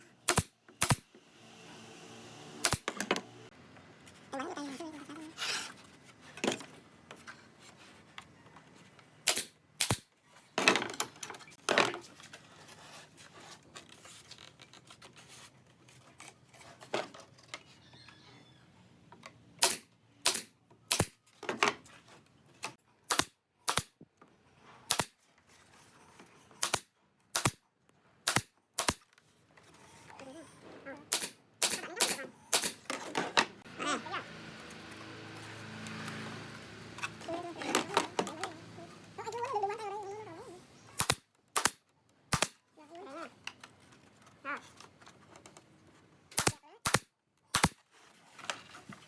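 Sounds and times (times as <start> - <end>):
nails driven into wood: 0.2 - 1.1, 2.6 - 3.2, 9.2 - 10.1, 19.6 - 21.7, 23.0 - 24.0, 24.9 - 25.2, 26.6 - 27.6, 28.2 - 29.2, 31.1 - 33.4, 41.0 - 42.6, 46.3 - 47.8.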